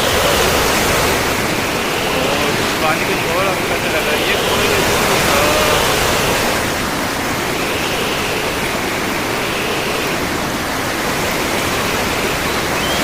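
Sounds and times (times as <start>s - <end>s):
sea waves breaking: 0.0s - 13.0s.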